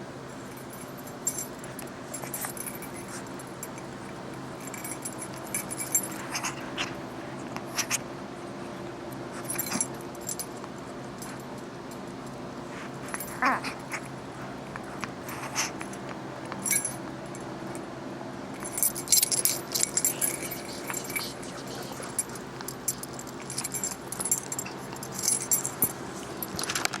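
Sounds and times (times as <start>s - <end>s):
metal jingling: 18.6s - 26.8s.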